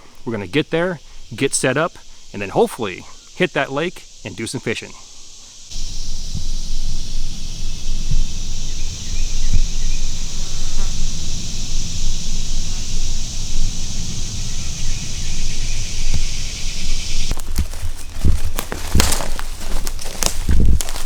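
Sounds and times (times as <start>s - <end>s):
insect chorus buzzing: 0.0s - 21.0s
soft thumps: 5.7s - 11.6s
low rumble: 5.7s - 17.3s.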